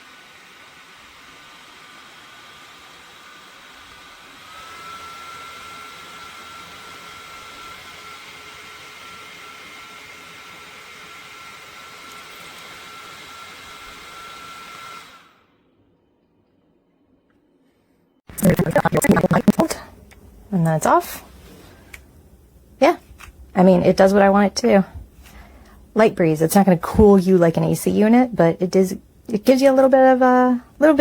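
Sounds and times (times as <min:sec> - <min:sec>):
neck fan running: 0:18.3 - 0:31.0.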